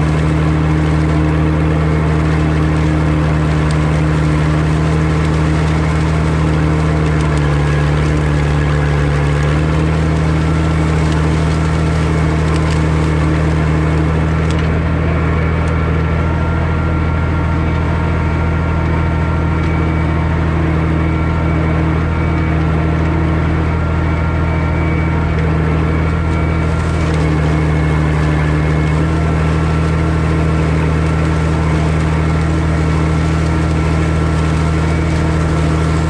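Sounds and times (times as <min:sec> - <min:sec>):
tractor engine running under load: 0:00.0 - 0:36.0.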